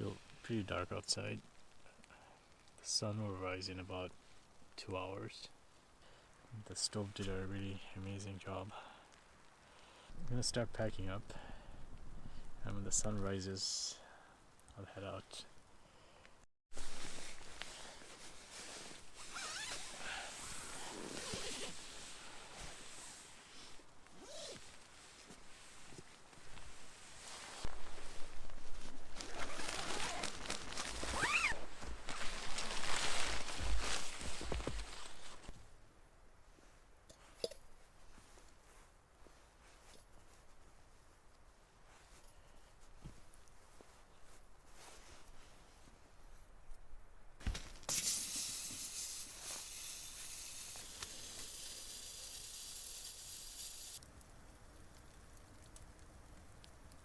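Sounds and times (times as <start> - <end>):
rustling of gear: 16.7 - 35.6
steady high hiss: 47.8 - 54.0.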